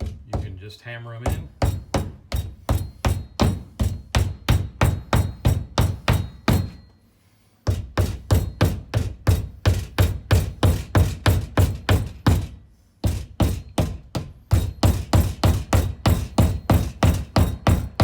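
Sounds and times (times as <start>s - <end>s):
hammer tapping plastic anchors: 0.0s - 0.6s, 7.6s - 18.0s.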